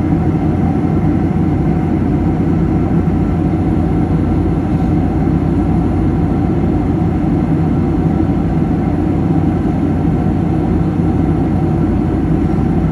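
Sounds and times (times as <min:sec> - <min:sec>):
airliner cabin engine and airflow noise: 0:00.0 - 0:12.9.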